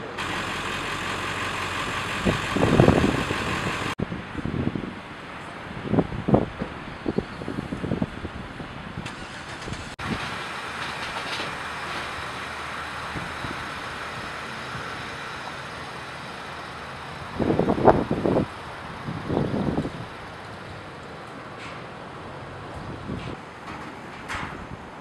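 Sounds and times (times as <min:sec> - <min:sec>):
loud low rumbles: 0:00.0 - 0:05.0
vehicle road noise: 0:00.0 - 0:25.0.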